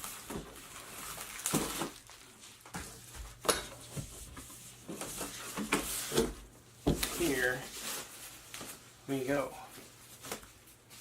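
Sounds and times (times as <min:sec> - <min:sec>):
packaging rustling: 0:00.0 - 0:02.8.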